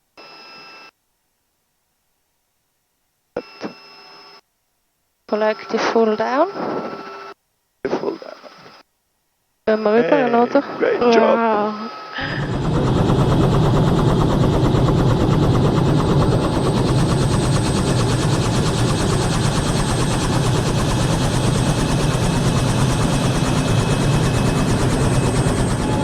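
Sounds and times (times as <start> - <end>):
helicopter turbine whining: 9.7 - 26.0
helicopter rotor beating: 12.2 - 26.0.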